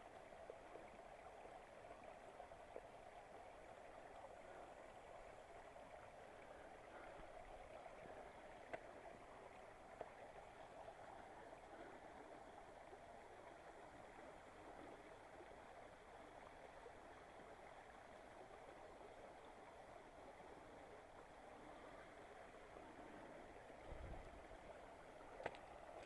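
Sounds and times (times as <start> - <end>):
stream flowing: 0.0 - 26.0
small clicks: 25.4 - 26.0.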